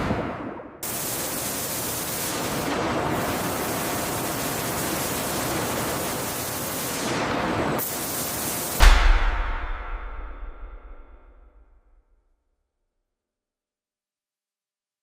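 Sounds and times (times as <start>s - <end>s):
loud rushing hiss: 0.8s - 10.5s
low thud: 8.8s - 12.2s.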